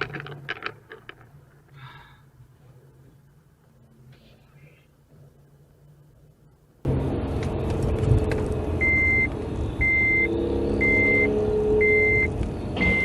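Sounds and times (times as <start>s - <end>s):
engine and road noise: 0.0s - 13.0s
reversing alarm beeping: 8.8s - 13.0s.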